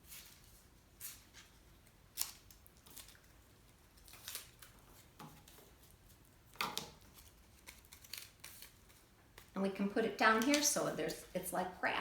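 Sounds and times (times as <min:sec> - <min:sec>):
scissors snipping paper: 0:07.1 - 0:08.8.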